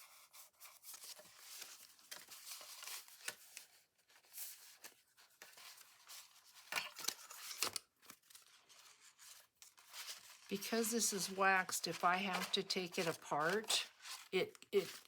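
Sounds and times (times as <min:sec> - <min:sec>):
paper rustling: 0:00.0 - 0:15.0.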